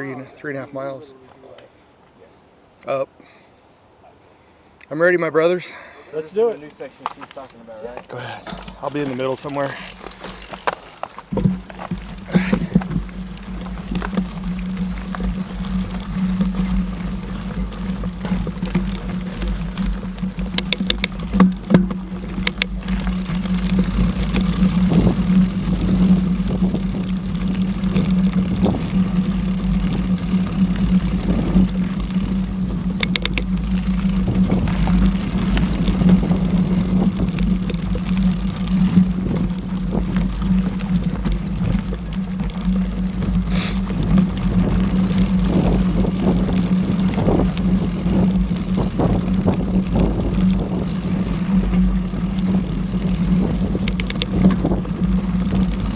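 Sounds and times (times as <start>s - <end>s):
bike tyres rumbling on dirt: 6.4s - 55.9s
bike knocking and rattling: 6.5s - 55.9s
wind on microphone: 11.3s - 55.9s.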